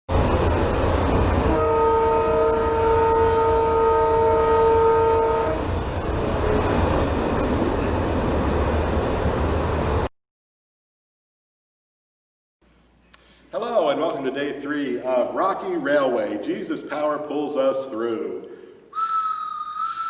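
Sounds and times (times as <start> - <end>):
train rumbling: 0.1 - 10.1
train horn blast: 1.6 - 5.8.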